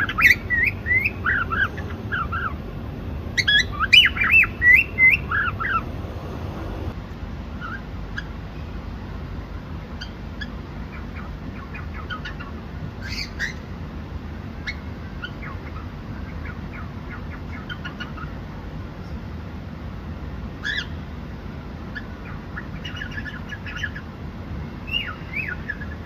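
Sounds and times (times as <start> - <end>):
cockatiel chirping and squawking: 0.0 - 2.6, 3.4 - 5.9, 11.2 - 13.6, 14.7 - 18.3, 20.6 - 20.9, 21.9 - 24.0
low background hum: 0.0 - 26.0.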